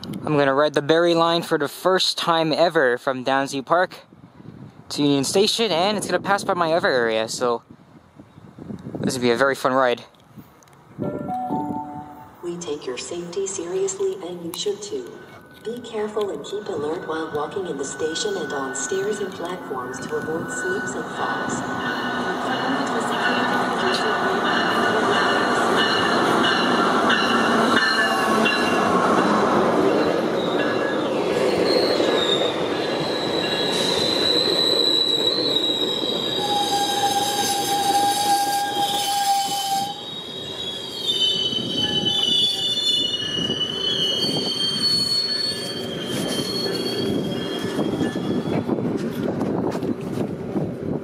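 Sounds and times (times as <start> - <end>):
locomotive rumbling past: 11.0 - 51.0
train wheel and brake squeals: 14.0 - 28.9, 30.0 - 49.2.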